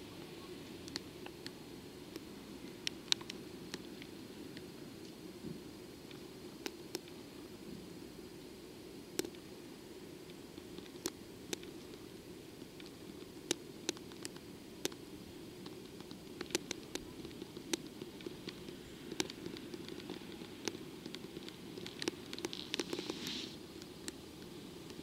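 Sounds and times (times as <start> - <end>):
sharp ticks and clicks: 0.8 - 5.2, 9.2 - 9.5, 10.3 - 12.0, 12.6 - 25.0
short hiss: 22.6 - 23.6.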